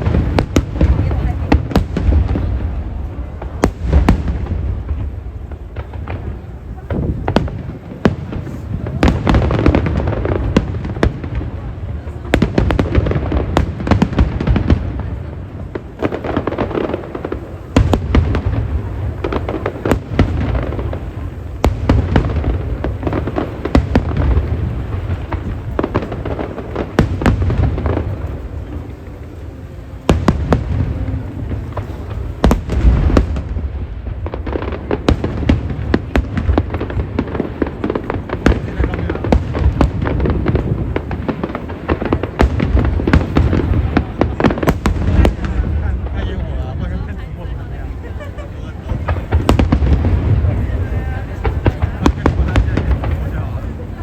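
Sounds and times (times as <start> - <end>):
fireworks bangs and booms: 0.0 - 54.0
fireworks rumble and crackle: 0.0 - 54.0.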